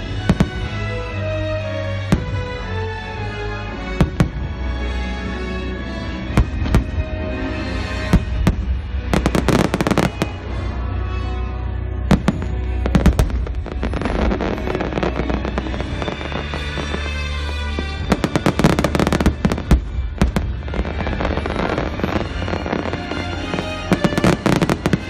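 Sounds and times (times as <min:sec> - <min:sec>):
music playing: 0:00.0 - 0:25.0
fireworks bangs: 0:07.9 - 0:10.4, 0:12.1 - 0:25.0.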